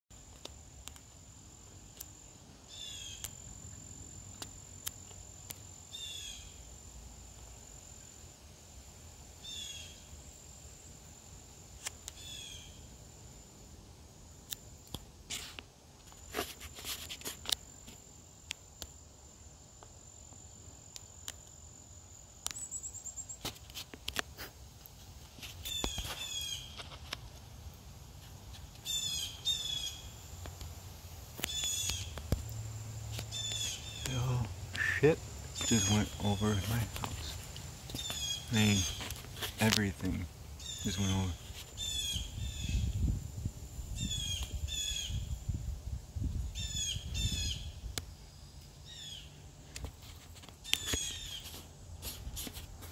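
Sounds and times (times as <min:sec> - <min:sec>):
birds calling: 0:25.6 - 0:27.0, 0:28.8 - 0:30.2, 0:31.4 - 0:32.2, 0:33.0 - 0:42.9, 0:50.6 - 0:51.6.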